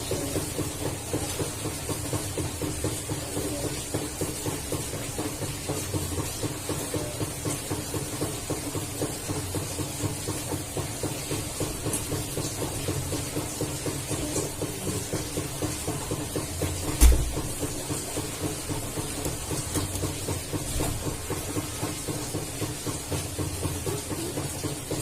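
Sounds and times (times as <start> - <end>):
sharp thump: 17.0 - 17.4.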